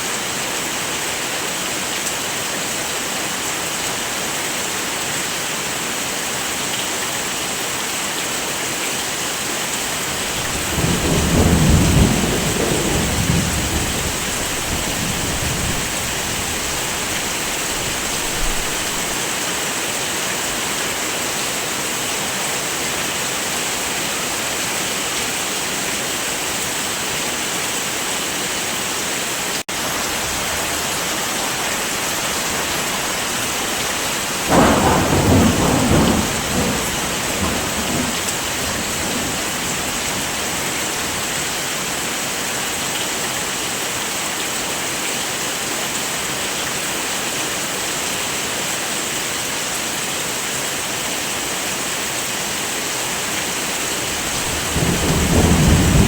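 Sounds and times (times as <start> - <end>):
heavy rain: 0.0 - 56.0
thunder rumbling: 9.8 - 19.2, 30.2 - 41.3, 54.0 - 56.0.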